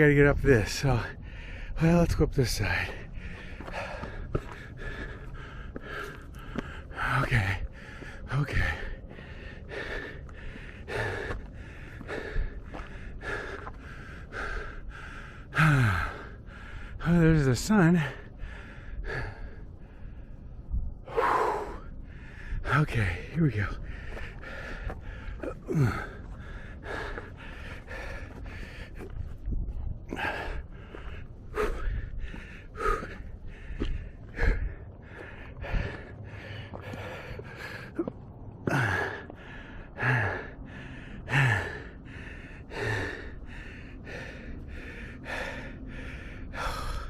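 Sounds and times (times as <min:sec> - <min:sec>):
man breathing hard: 0:01.0 - 0:01.8, 0:02.7 - 0:17.1, 0:18.0 - 0:47.0
low rumble: 0:18.0 - 0:47.0.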